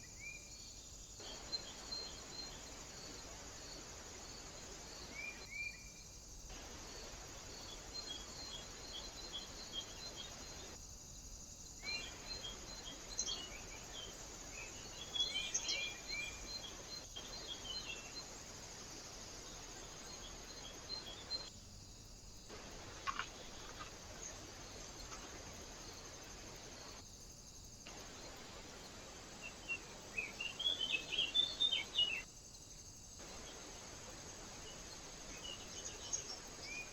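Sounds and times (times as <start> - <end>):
small birds chirping: 11.6 - 21.5, 22.1 - 36.9.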